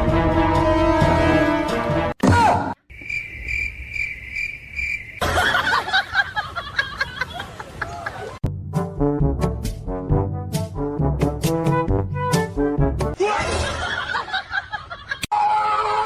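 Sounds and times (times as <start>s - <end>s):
music: 0.0s - 2.2s, 8.4s - 13.2s
high steady chirps: 2.9s - 5.4s.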